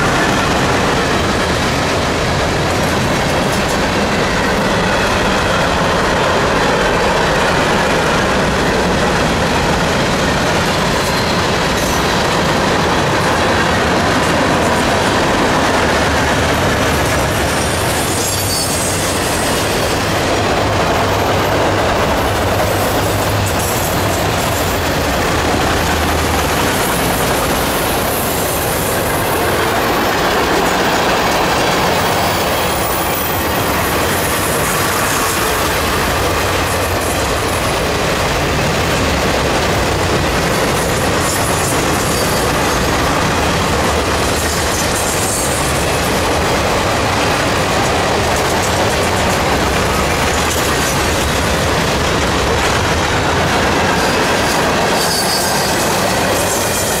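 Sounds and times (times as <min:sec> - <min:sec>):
steel wheels running on rails: 0:00.0 - 0:57.0.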